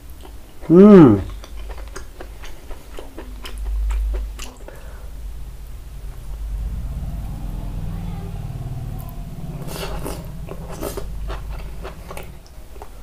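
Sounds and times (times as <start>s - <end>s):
man chewing food: 0.0s - 5.2s, 9.1s - 13.0s
low rumble: 3.2s - 13.0s.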